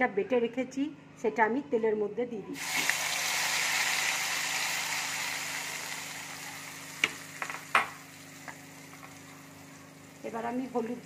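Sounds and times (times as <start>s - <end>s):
paste sizzling in hot oil: 2.6s - 10.2s.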